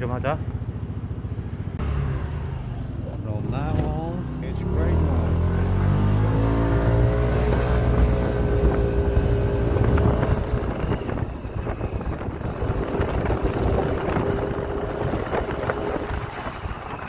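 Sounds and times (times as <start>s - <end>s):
motorcycle engine running: 0.0s - 17.0s
wind buffeting microphone: 5.2s - 17.0s.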